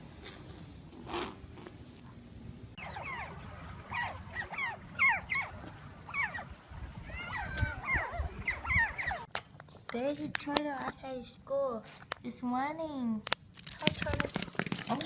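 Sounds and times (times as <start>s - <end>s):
otters chirping: 2.8s - 6.5s, 7.1s - 9.3s.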